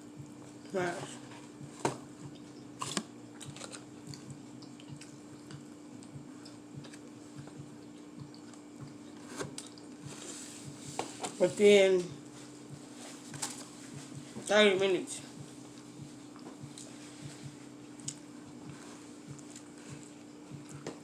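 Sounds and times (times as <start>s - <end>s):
low electrical hum: 0.0s - 21.0s
chewing and mouth clicks: 2.2s - 10.0s, 15.8s - 16.9s, 18.0s - 20.9s.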